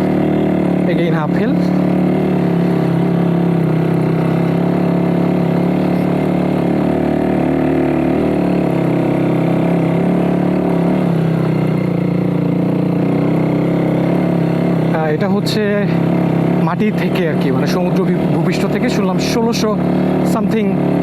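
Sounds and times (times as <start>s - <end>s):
motorcycle engine under load: 0.0s - 21.0s.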